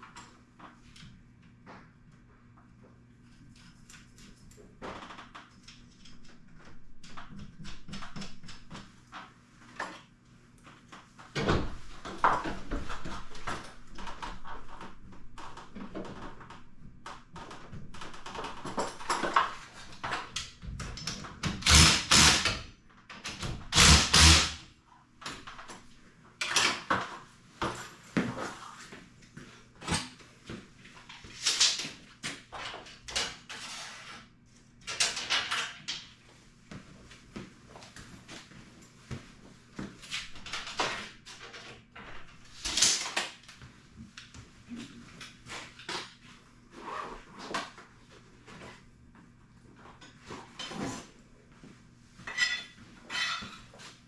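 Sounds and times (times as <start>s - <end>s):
metal clanks and scrapes: 52.3s - 53.7s.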